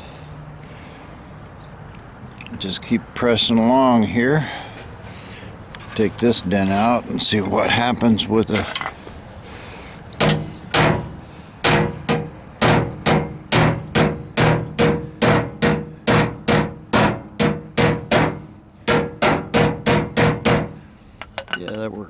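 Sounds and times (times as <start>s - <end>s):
hammer striking sheet metal: 10.2s - 21.6s.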